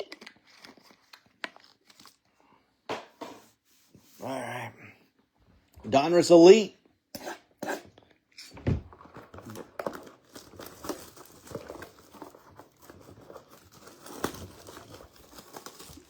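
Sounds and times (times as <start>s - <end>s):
cardboard tearing: 8.9s - 16.0s
plastic wrap crinkling: 8.9s - 16.0s.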